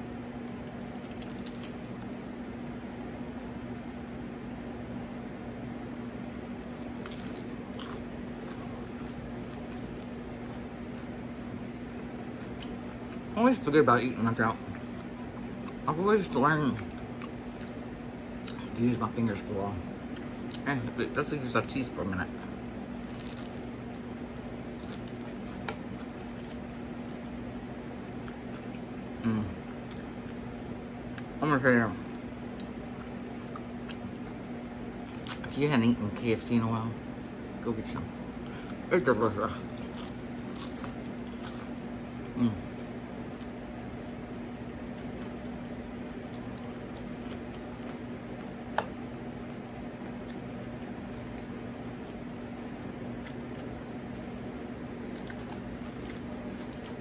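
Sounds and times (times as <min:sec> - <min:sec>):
steady low hum: 0:00.0 - 0:57.0
chewing crispy food: 0:00.3 - 0:02.2, 0:06.5 - 0:13.4, 0:14.2 - 0:19.1, 0:22.2 - 0:31.4, 0:32.0 - 0:35.6, 0:38.4 - 0:57.0.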